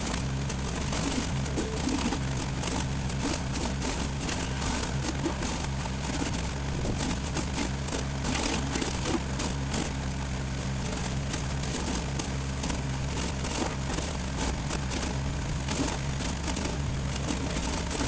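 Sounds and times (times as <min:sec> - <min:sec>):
crackling noises: 0:00.0 - 0:10.0
small engine running: 0:00.0 - 0:18.0.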